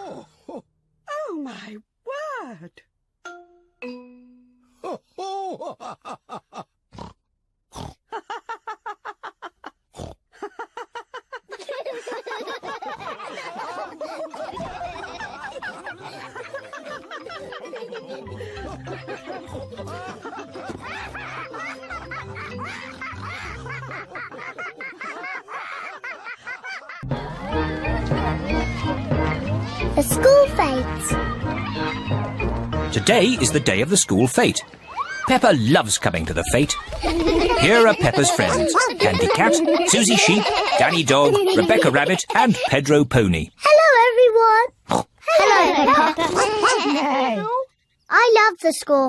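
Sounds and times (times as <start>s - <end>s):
cartoon pigs laughing and snorting: 7.8s - 43.8s, 44.7s - 47.7s
music: 16.0s - 24.1s, 27.0s - 34.6s.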